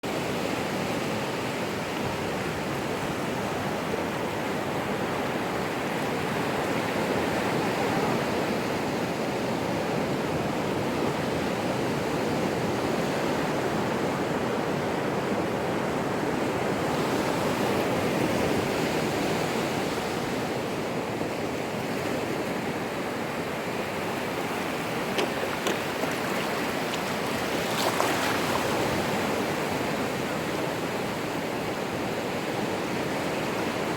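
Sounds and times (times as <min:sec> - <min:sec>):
ocean waves breaking: 0:16.8 - 0:33.9.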